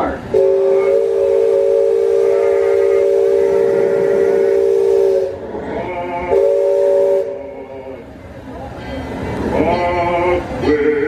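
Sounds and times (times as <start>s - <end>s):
steam whistle blast: 0.3s - 7.8s.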